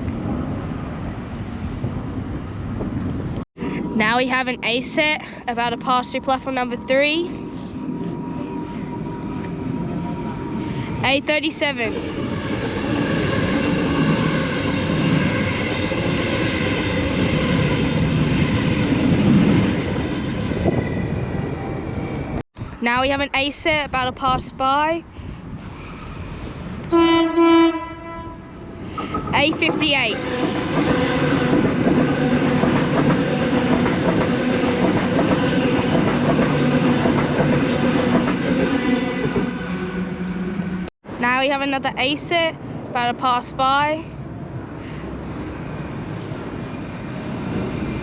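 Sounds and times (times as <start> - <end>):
electric train whine: 3.6 - 22.4, 28.0 - 40.9
train wheels on rails: 28.9 - 40.9.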